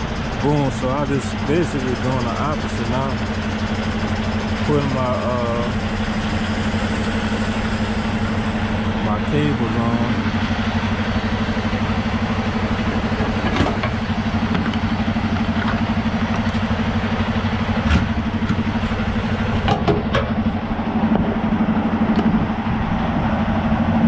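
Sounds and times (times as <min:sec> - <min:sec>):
diesel truck engine idling: 0:00.0 - 0:24.0
air line clicks and knocks: 0:19.6 - 0:20.4.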